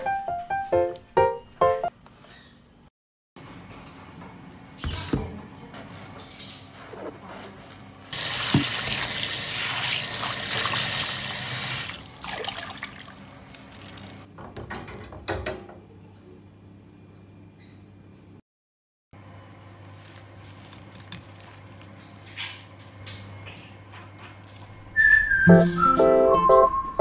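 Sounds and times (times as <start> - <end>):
tap water running into sink: 8.2 - 14.3.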